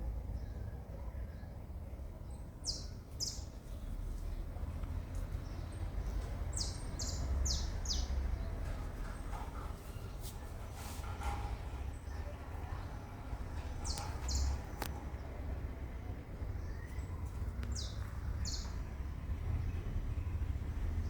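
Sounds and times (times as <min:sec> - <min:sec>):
small bird chirping: 0:02.6 - 0:03.5, 0:13.8 - 0:14.9, 0:16.6 - 0:18.8.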